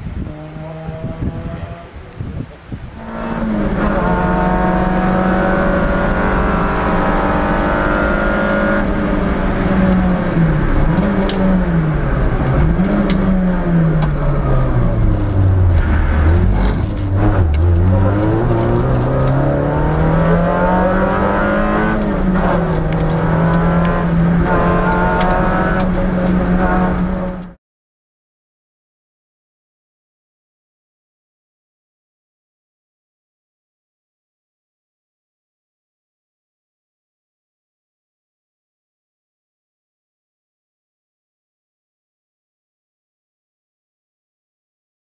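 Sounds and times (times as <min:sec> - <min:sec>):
car engine revving: 0:00.2 - 0:02.2, 0:03.0 - 0:27.6.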